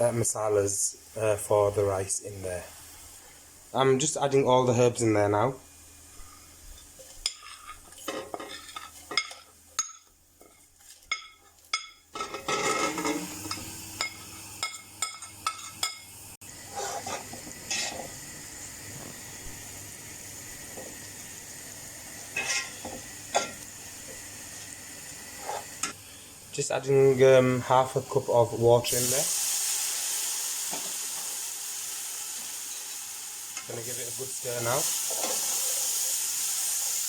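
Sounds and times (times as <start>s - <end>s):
oil sizzling in a pan: 0.0s - 37.0s
utensil scraping a pan: 6.8s - 9.5s, 16.6s - 18.2s, 22.3s - 23.6s, 25.3s - 26.0s.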